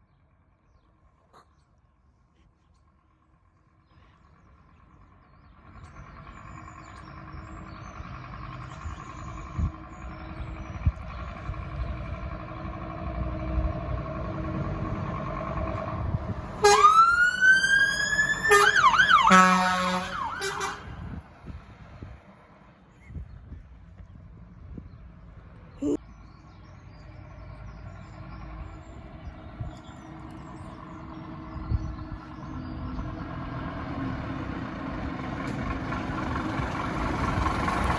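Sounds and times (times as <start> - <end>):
fire engine running: 2.9 - 22.8, 26.8 - 37.9
siren wailing and yelping: 16.6 - 19.4, 20.1 - 20.8.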